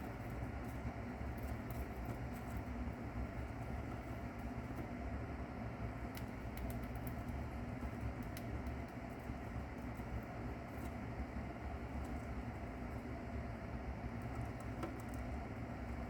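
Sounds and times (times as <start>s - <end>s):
steady low hum: 0.0s - 16.0s
mouse crunching shell clicks: 6.0s - 9.3s.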